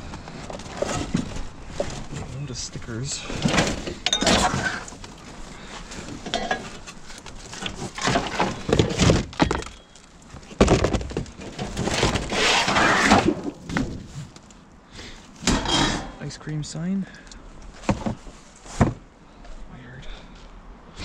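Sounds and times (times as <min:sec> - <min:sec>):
rustling: 0:00.0 - 0:16.4, 0:17.6 - 0:19.6
wooden logs knocking: 0:03.4 - 0:12.3.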